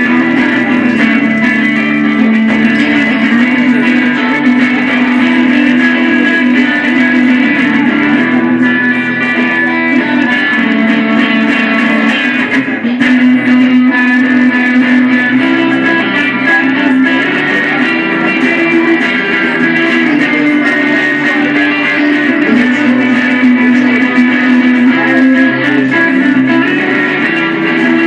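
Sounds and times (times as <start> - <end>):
guitar playing: 0.0 - 28.0.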